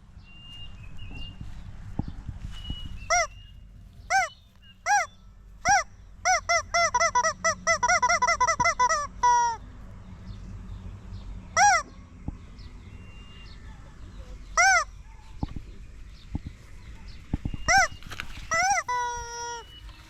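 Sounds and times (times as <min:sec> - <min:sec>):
goose honking: 0:03.1 - 0:03.4, 0:04.1 - 0:09.6, 0:11.6 - 0:12.0, 0:14.5 - 0:15.0, 0:17.7 - 0:20.0.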